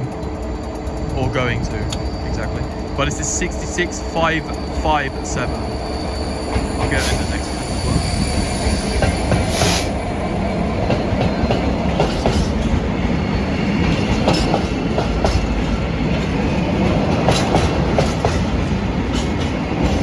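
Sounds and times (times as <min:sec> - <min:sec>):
freight train wheels rumbling: 0:00.0 - 0:20.0
wheels clicking over rail joints: 0:08.9 - 0:20.0.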